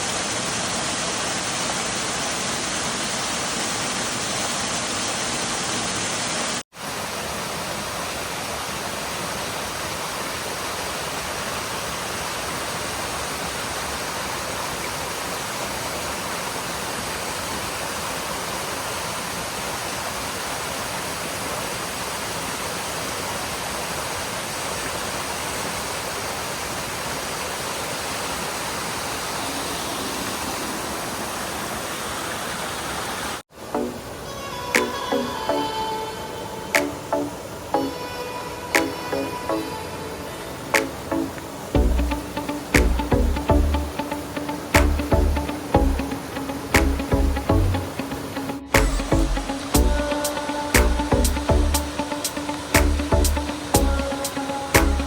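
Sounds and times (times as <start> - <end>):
water rushing over rocks: 0.0 - 35.8.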